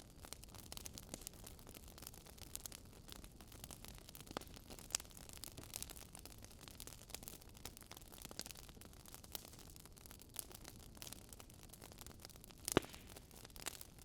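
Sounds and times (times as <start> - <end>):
fire crackling: 0.0 - 14.0.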